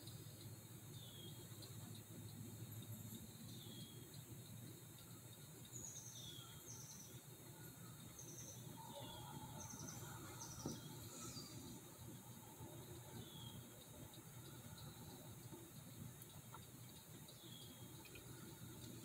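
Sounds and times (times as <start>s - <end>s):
small bird chirping: 0.0s - 19.0s.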